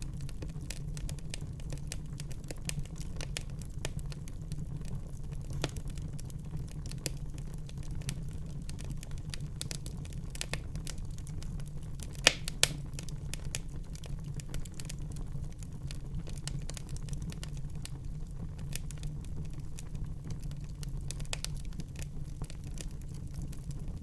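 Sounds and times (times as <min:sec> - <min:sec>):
fire crackling: 0:00.0 - 0:24.0
low rumble of flames: 0:00.0 - 0:24.0
fire pops: 0:04.8 - 0:15.2.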